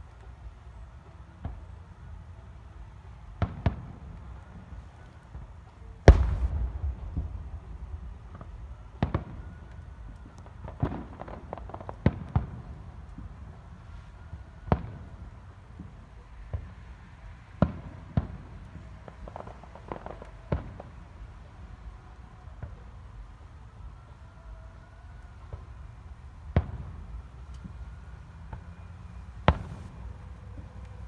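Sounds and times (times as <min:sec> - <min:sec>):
low steady rumble: 0:06.0 - 0:10.6
firework shells bursting: 0:06.1 - 0:09.4.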